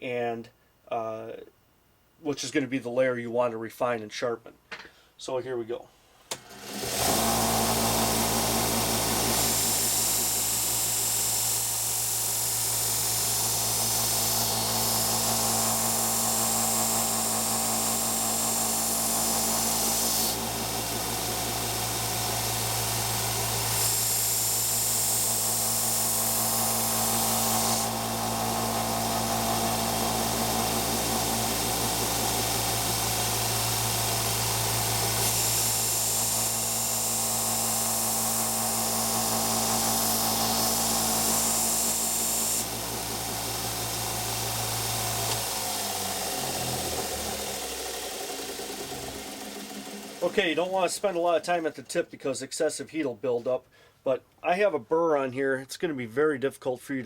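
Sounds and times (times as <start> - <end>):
belt sander motor running: 6.4 - 51.2.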